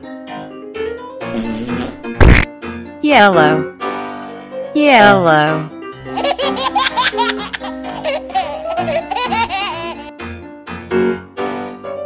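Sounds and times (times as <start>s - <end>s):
light children's music: 0.0s - 1.8s, 2.6s - 12.0s
baby-like giggling: 6.1s - 10.1s.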